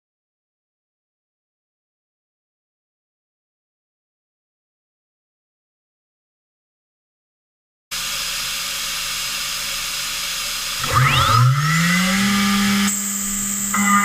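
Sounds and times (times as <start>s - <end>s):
spindle whine: 8.0s - 14.0s
shrill multi-pitched tone: 10.8s - 14.0s.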